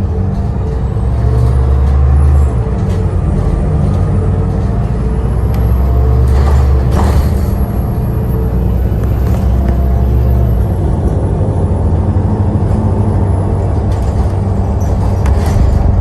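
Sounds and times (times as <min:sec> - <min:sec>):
heavy vehicle engine rumbling: 0:00.0 - 0:16.0.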